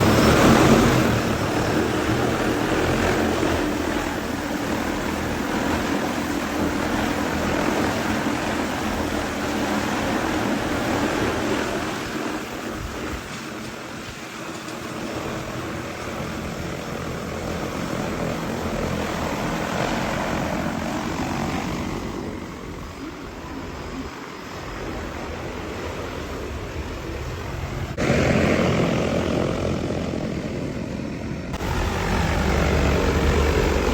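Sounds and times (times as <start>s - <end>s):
drone propellers whirring: 0.0s - 33.9s.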